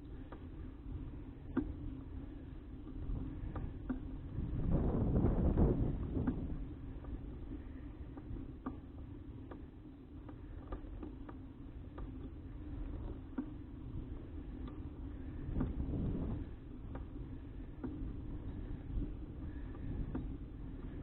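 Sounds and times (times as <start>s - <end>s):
faint hum: 0.0s - 21.0s
wind on microphone: 3.0s - 7.6s, 15.2s - 21.0s.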